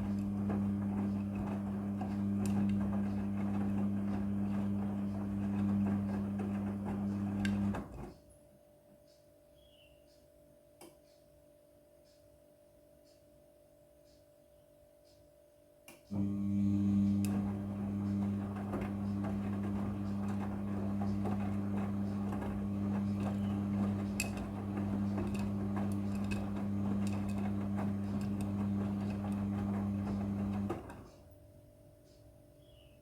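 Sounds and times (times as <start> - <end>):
washing machine clicking clatter: 0.0 - 8.2, 16.1 - 31.4
washing machine motor hum: 0.0 - 8.2, 16.1 - 33.0.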